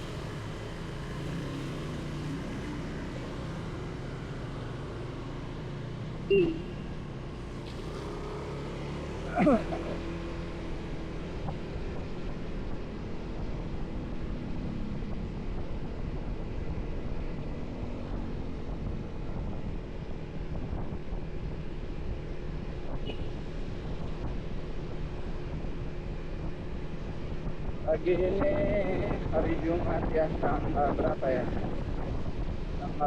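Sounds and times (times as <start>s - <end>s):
motorcycle engine hum: 0.0s - 33.0s
wind noise on microphone: 18.0s - 21.5s, 26.4s - 32.8s.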